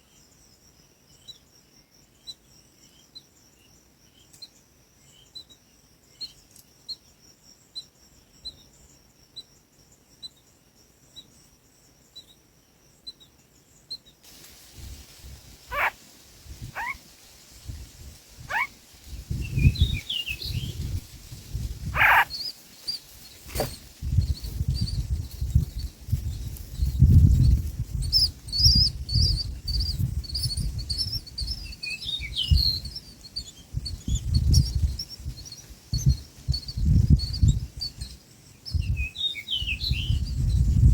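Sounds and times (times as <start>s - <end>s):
bird calls sweeping down in pitch: 15.7s - 16.0s, 16.7s - 17.0s, 18.5s - 18.7s
high bird chirps: 15.7s - 16.0s, 16.6s - 17.0s, 18.4s - 18.7s, 19.3s - 25.9s, 26.8s - 38.1s.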